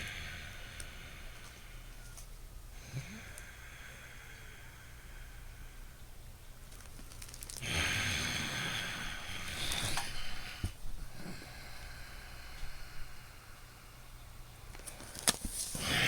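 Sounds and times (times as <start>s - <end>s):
person breathing through nose: 0.0s - 2.0s, 2.7s - 6.1s, 7.6s - 14.0s, 15.7s - 16.0s.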